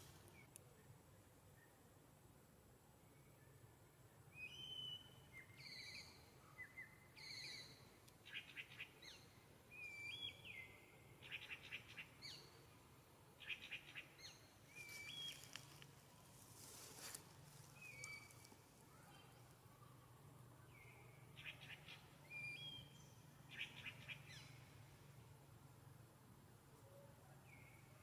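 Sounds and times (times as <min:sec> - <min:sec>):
faint bird whistled calls: 0:04.4 - 0:12.5, 0:13.4 - 0:15.5, 0:20.7 - 0:24.6.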